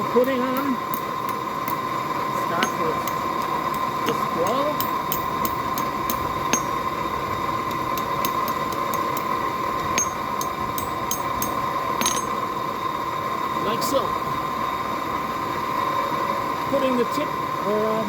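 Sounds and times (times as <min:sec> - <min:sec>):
fire crackling: 0:00.0 - 0:12.4
forge rushing hum: 0:00.0 - 0:12.9.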